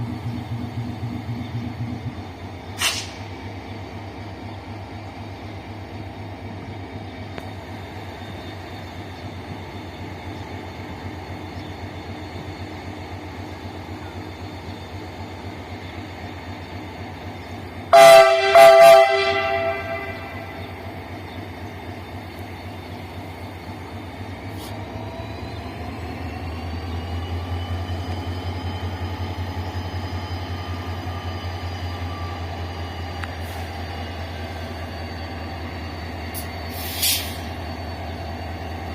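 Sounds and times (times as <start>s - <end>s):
diesel locomotive engine running: 0.0s - 38.9s
locomotive horn blasts: 17.9s - 20.6s.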